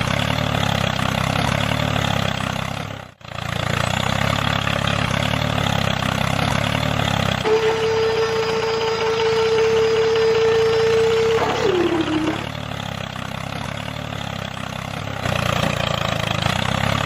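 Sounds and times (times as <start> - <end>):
engine idling: 0.0 - 17.0
steady high tone: 7.4 - 12.5.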